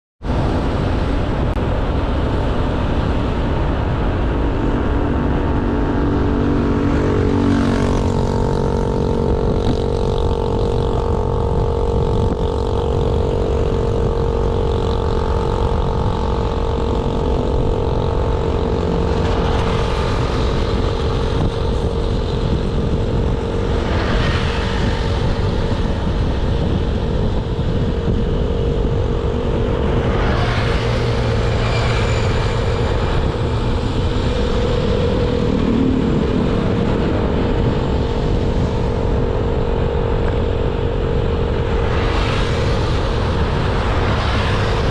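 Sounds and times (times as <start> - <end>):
road and wind noise: 0.2 - 44.9
scooter engine running: 3.7 - 41.8.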